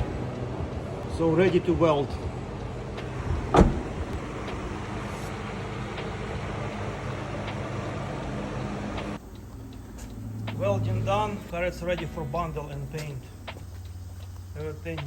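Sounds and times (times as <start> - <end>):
short thump: 3.3 - 4.2.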